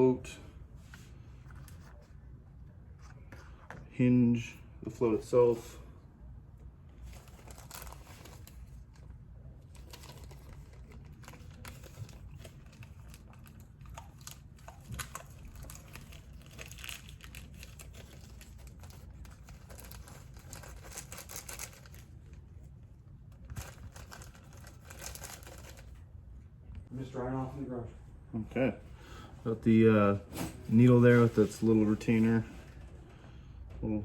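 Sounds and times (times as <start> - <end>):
low steady hum: 0.0 - 34.0
rustling and crinkling: 6.9 - 26.1, 30.3 - 33.0.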